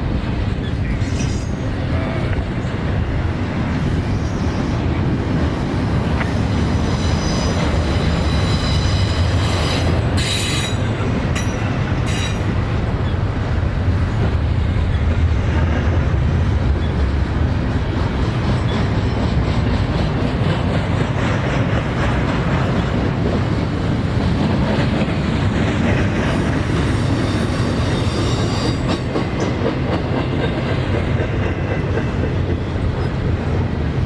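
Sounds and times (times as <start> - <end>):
freight train rumbling: 0.0 - 34.0
rail joint clicks: 0.0 - 34.0
high wheel squeal: 0.6 - 2.2, 6.3 - 13.3.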